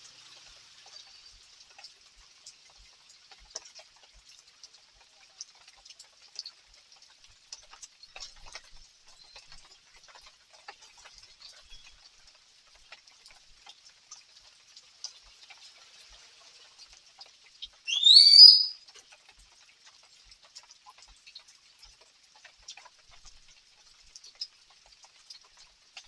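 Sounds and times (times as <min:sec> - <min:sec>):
light rain patter: 0:00.0 - 0:26.0
rising whistle-like call: 0:17.9 - 0:18.8.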